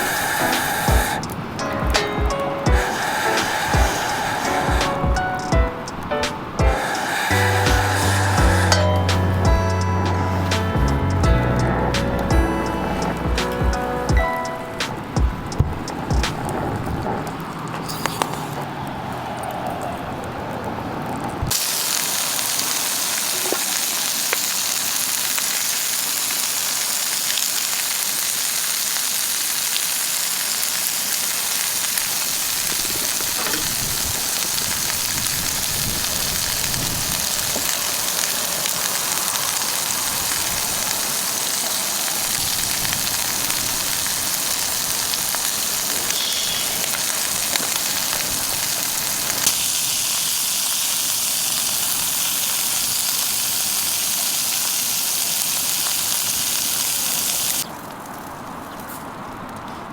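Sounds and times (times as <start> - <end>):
food sizzling in a pan: 0.0 - 10.8, 21.5 - 57.7.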